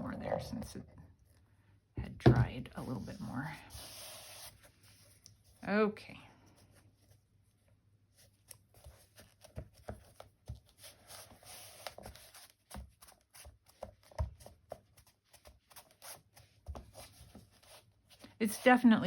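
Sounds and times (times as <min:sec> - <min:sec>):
rustling of craft materials: 0:06.4 - 0:19.0.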